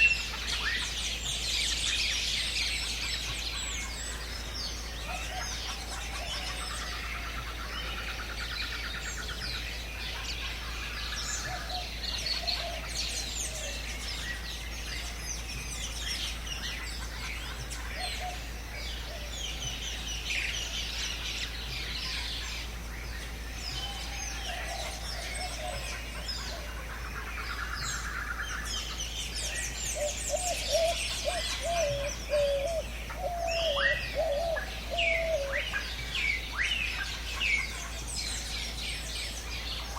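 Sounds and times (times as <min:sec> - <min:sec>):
birds chirping and singing: 0:00.0 - 0:39.9
low wavering whistled call: 0:29.5 - 0:35.8.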